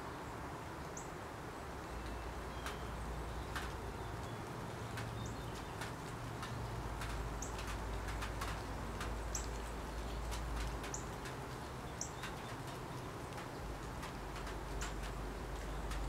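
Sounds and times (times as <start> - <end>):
faint clicks: 3.5 - 16.0.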